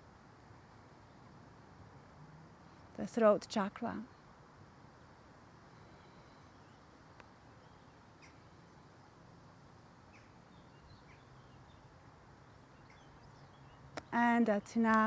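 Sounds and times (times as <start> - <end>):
faint bird chirps: 5.0 - 9.2.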